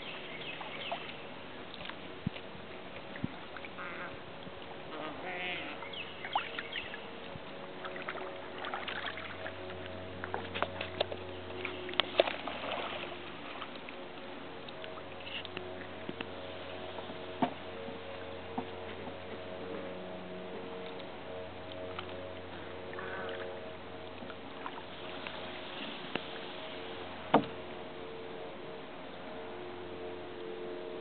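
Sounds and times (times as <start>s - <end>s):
steady hum: 0.0s - 31.0s
paddle knocking canoe hull: 16.9s - 19.8s, 27.3s - 27.6s.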